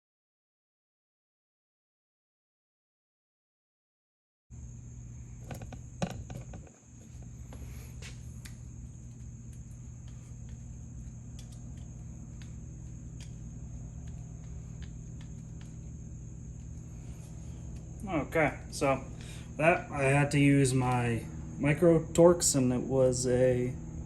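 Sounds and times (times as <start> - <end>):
steady background hum: 4.6 - 24.0
high-pitched whine: 5.2 - 24.0.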